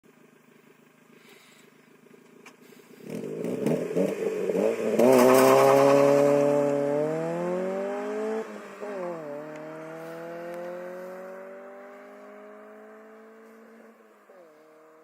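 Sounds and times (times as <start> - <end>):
loud car exhaust accelerating: 2.0 - 15.0
car engine revving: 2.4 - 15.0.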